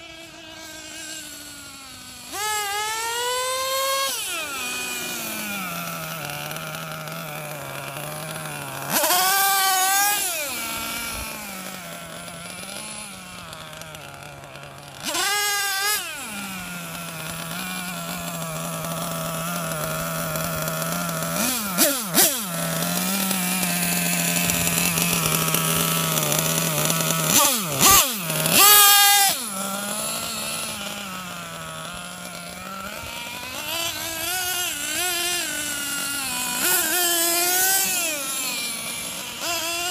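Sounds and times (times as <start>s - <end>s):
two-stroke engine idling and revving: 0.0s - 39.9s.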